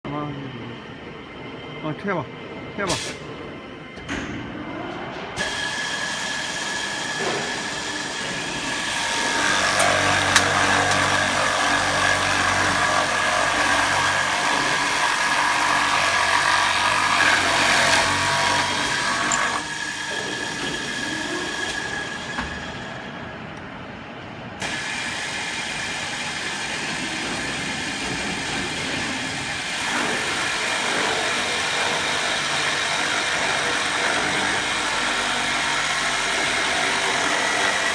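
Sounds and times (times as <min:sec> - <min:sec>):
drilling machine high whine: 0:05.4 - 0:23.6, 0:24.6 - 0:37.9.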